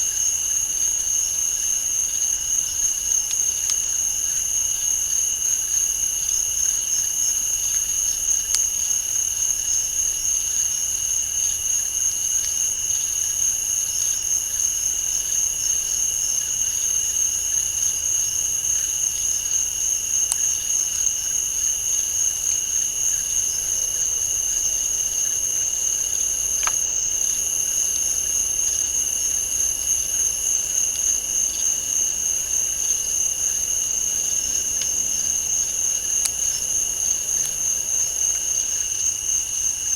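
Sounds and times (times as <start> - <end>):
crickets and insects trilling: 0.0 - 39.9
faint ticks: 1.6 - 9.2, 17.6 - 39.5.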